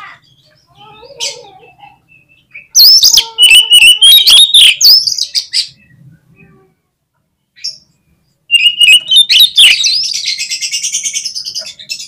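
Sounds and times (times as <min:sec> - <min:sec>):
bird song with high whistles: 0:02.1 - 0:06.0, 0:08.5 - 0:12.0.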